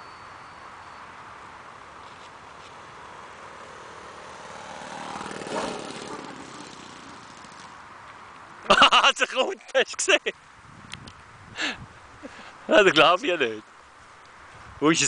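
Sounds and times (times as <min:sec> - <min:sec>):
model airplane engine flying past: 0:02.2 - 0:07.8.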